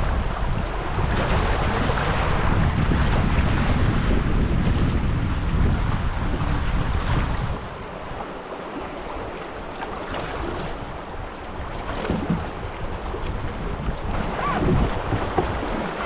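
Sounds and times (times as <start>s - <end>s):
wind buffeting microphone: 0.0s - 16.0s
river rapids rushing: 13.8s - 16.0s.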